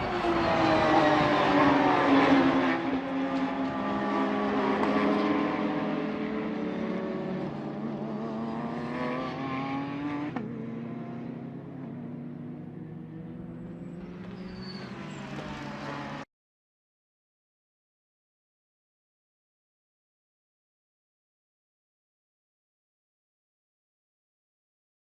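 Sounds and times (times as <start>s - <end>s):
racing car passing by: 0.0s - 11.6s, 12.6s - 16.3s
racing car engines: 0.0s - 16.3s.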